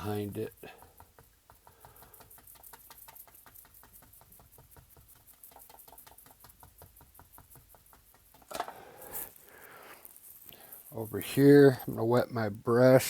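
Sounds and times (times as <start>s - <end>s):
paintbrush tapping on canvas: 0.0s - 9.2s.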